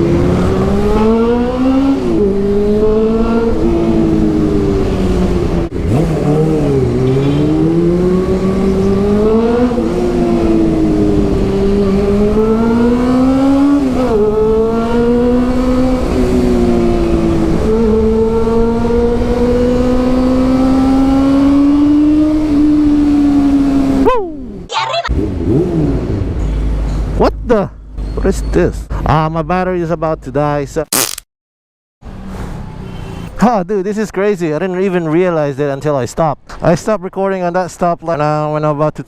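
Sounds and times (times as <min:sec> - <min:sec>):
motorcycle engine shifting gears: 0:00.0 - 0:24.1.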